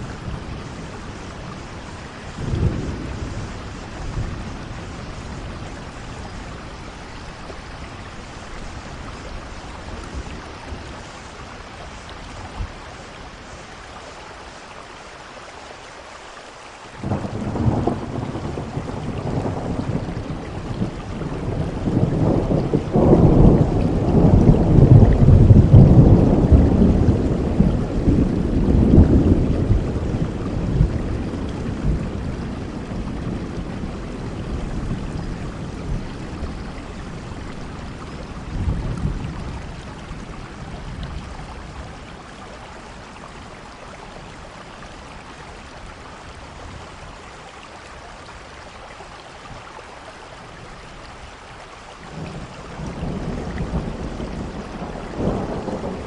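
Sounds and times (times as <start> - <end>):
thunder rolling: 0.0 - 6.6, 17.0 - 40.0, 52.1 - 56.0
steady rainfall: 0.0 - 56.0.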